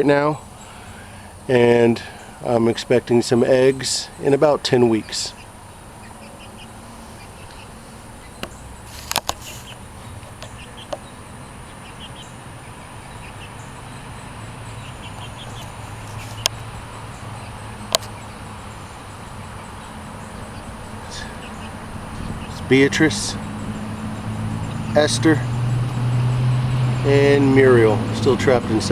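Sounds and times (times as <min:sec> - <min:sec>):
chicks peeping: 0:00.0 - 0:28.9
sharp clicks: 0:08.4 - 0:11.1, 0:15.2 - 0:16.6, 0:17.9 - 0:18.2.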